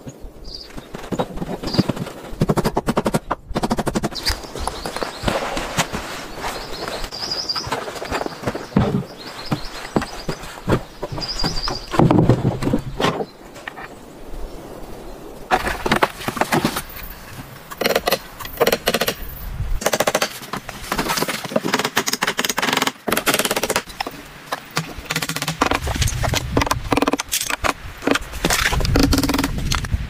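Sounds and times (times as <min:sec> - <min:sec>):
knocks and clicks: 0:19.8 - 0:29.9.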